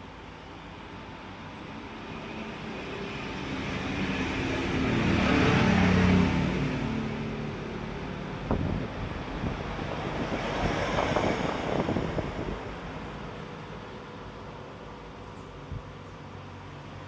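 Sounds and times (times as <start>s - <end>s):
electric fan wind noise: 8.4s - 12.6s.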